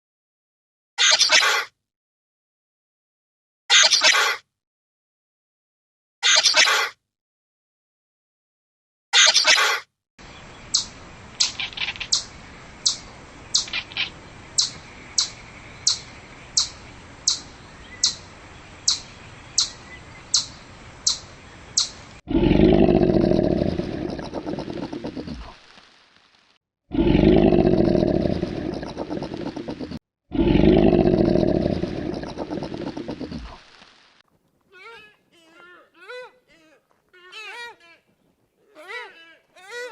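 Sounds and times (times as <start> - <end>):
loud deep animal call: 22.3 - 25.5, 26.9 - 33.6.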